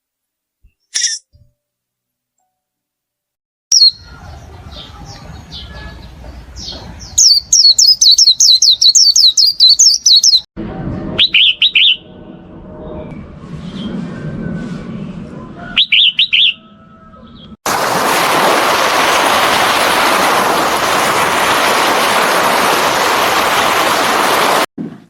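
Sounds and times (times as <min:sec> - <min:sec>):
small bird chirping: 0:03.7 - 0:10.4, 0:15.8 - 0:16.6.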